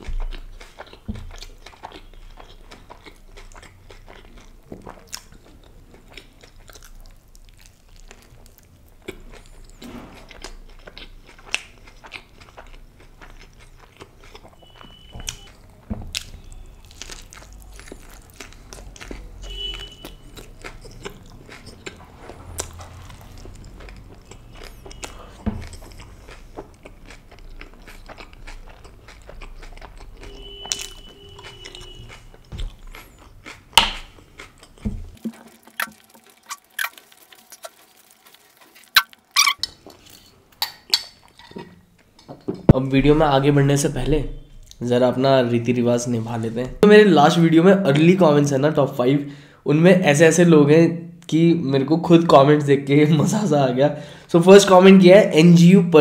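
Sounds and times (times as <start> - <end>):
chewing soft food: 0.0 - 40.4
wet mouth clicks and smacks: 35.4 - 37.8, 38.8 - 39.6.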